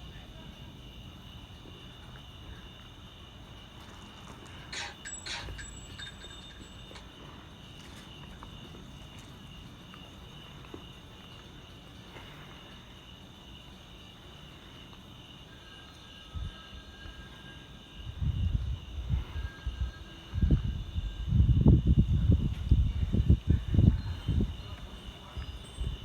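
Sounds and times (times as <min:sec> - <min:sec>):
high-pitched insect chirring: 0:04.5 - 0:07.2.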